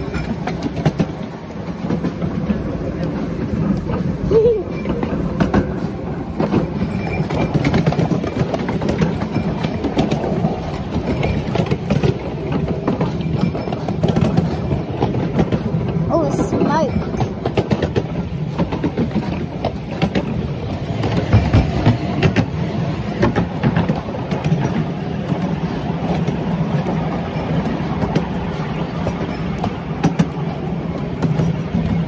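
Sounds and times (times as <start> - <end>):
train rumbling: 0.0 - 32.0
wheels clacking over rails: 0.0 - 32.0.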